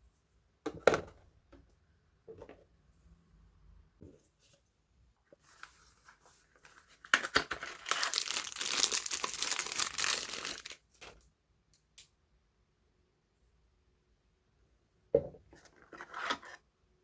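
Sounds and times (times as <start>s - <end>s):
wrapper crinkling and tearing: 7.1s - 11.2s.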